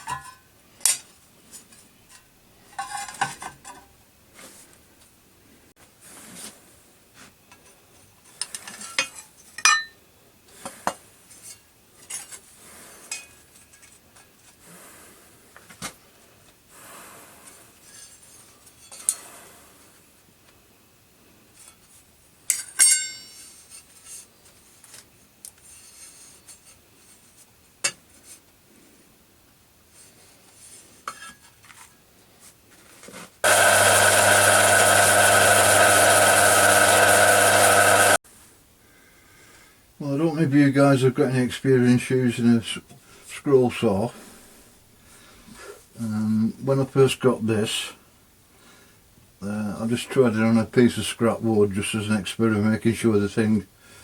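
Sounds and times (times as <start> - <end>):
loud steady motor hum: 33.4 - 38.2.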